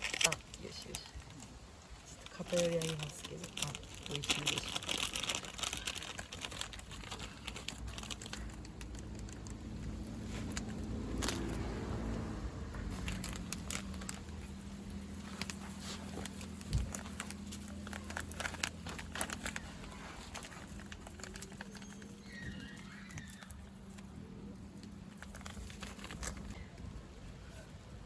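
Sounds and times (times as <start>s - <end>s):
bird call: 21.8s - 23.6s.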